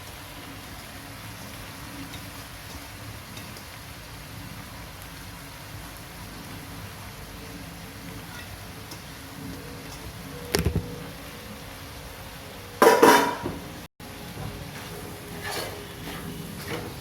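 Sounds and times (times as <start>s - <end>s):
spatula scraping in a pan: 14.7s - 17.0s.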